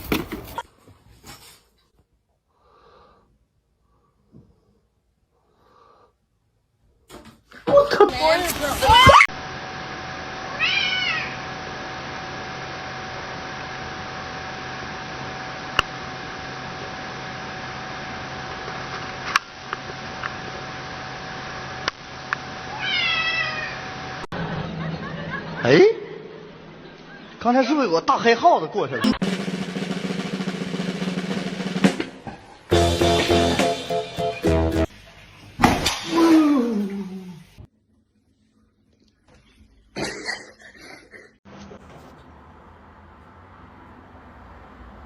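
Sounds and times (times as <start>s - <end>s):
steady background hum: 1.9s - 29.0s
high-pitched animal cry: 10.6s - 11.4s, 22.7s - 23.8s.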